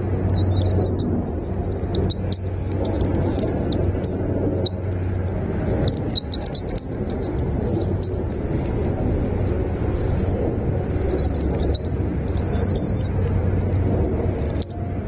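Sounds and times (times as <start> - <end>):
low rumble with hum: 0.0 - 15.0
bird chirps: 0.3 - 1.1, 5.8 - 6.8, 11.1 - 13.1.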